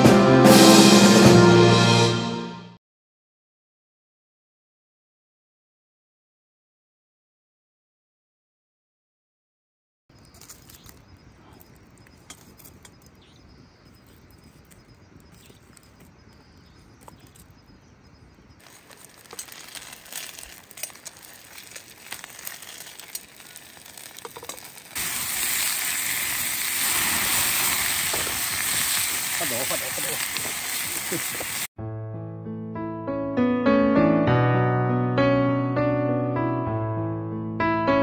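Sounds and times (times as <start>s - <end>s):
wood fire crackling and sizzling: 10.1s - 31.7s.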